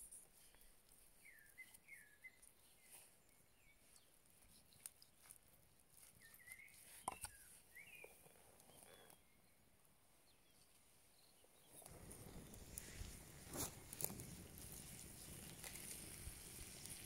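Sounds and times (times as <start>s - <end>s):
faint bird chirps: 0.4s - 5.3s, 5.9s - 12.5s.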